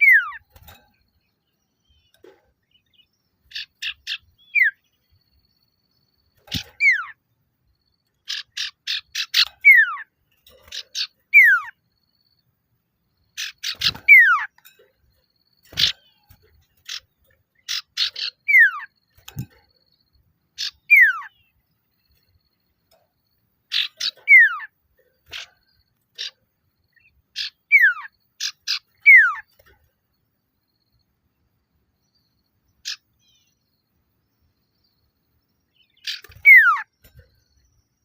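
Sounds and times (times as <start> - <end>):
bird chattering and whistling: 0.0 - 0.6, 2.8 - 4.9, 6.4 - 7.2, 8.1 - 11.8, 13.4 - 14.8, 15.6 - 19.6, 20.5 - 21.5, 23.7 - 29.5, 32.8 - 33.5, 35.7 - 37.3.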